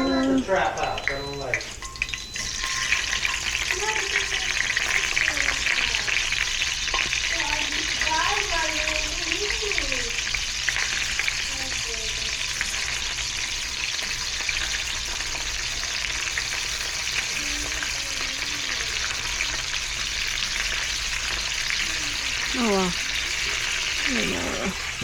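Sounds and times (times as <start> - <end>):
meat sizzling in a pan: 0.0 - 25.0.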